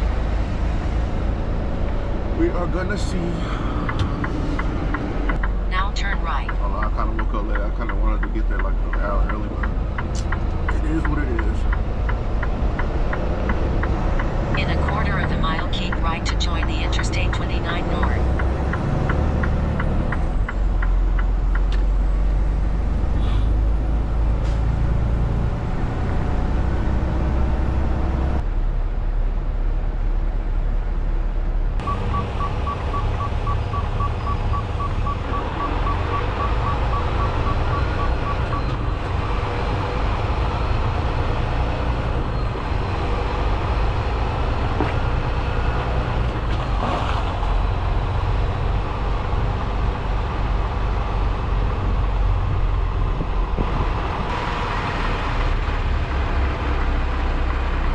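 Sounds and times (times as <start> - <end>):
truck engine and road drone: 0.0 - 57.9
short electronic beeps: 31.8 - 39.0.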